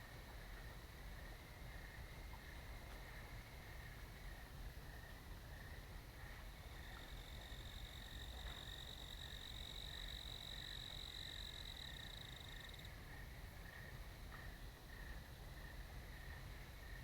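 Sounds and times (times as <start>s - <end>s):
insects chirping: 6.6s - 13.9s
high-pitched insect trill: 7.1s - 12.9s.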